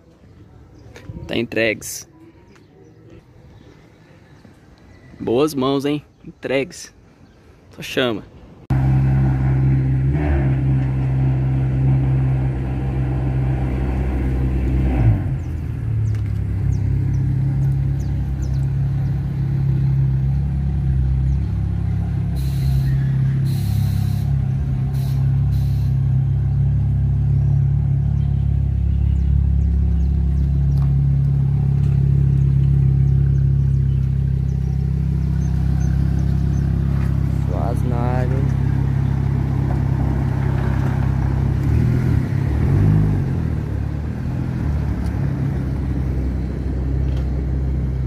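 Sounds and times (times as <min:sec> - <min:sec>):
car engine rumbling: 0:08.5 - 0:48.0
short hisses: 0:22.4 - 0:24.3, 0:24.9 - 0:26.0.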